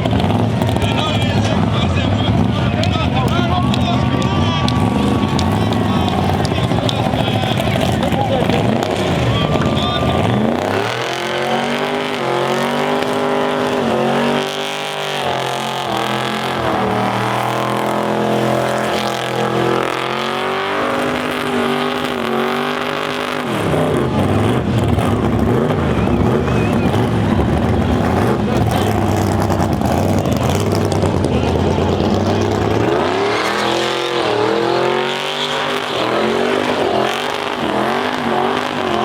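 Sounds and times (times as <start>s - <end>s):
car engine revving high: 0.0s - 39.0s.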